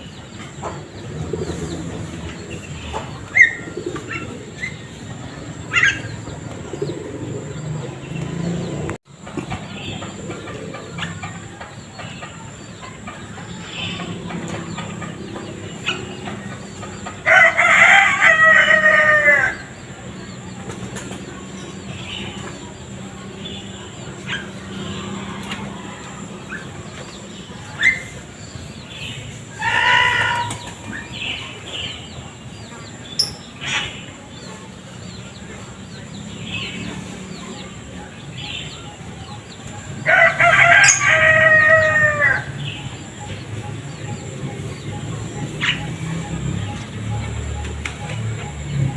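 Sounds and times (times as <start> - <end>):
rooster crowing: 17.2 - 19.7, 29.6 - 30.6, 40.0 - 42.7.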